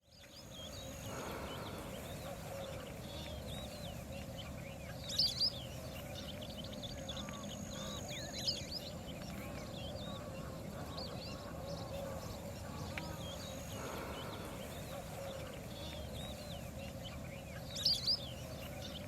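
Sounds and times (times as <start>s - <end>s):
low background noise: 0.0s - 19.0s
small birds chirping: 0.0s - 19.0s
sharp bird calls: 6.8s - 18.3s.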